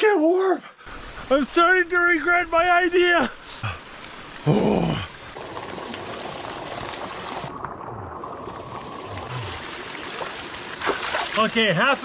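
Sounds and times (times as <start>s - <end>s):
water pouring and trickling: 5.1s - 12.0s.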